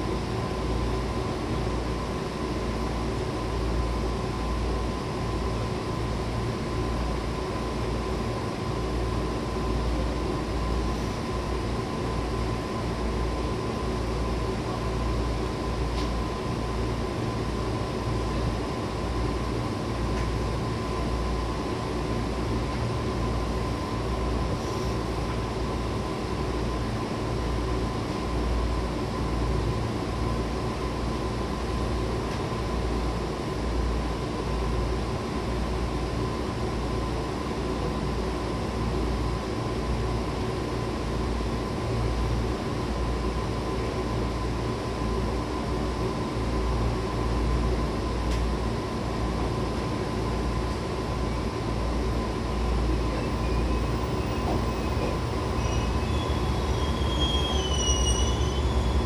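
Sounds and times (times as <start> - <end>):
wheels rumbling on rail: 52.0 - 59.0
high-pitched hum: 52.4 - 59.0.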